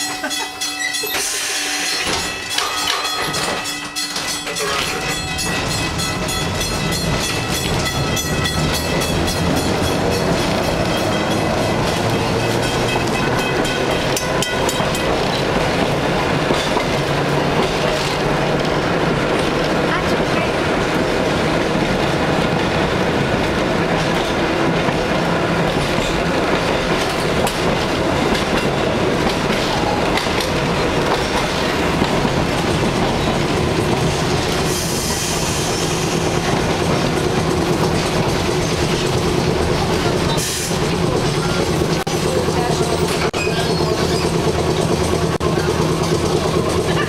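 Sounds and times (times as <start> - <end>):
train wheels rumbling and clattering: 0.0 - 47.0
wheel squeal: 43.3 - 44.6.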